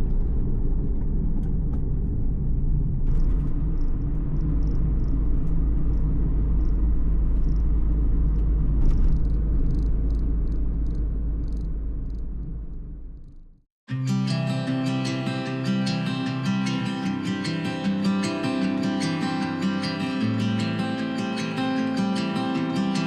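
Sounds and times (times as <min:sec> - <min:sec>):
road noise: 0:00.0 - 0:13.2
vehicle engine rumble: 0:00.0 - 0:13.6.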